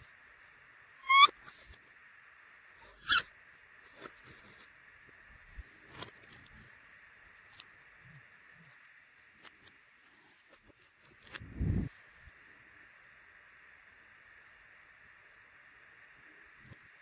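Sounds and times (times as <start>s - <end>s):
sharp rising squeak: 1.0s - 1.8s, 2.8s - 3.3s, 3.9s - 4.6s.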